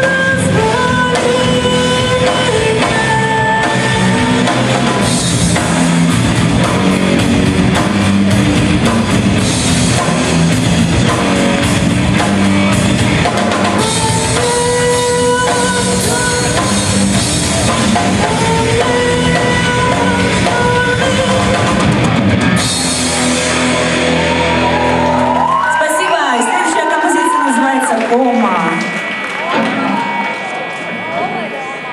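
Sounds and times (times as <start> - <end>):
heavy rock band playing: 0.0 - 31.9.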